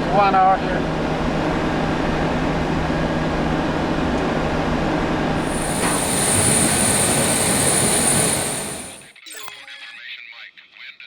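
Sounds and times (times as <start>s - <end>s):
airliner cockpit rushing hum: 5.2s - 9.2s.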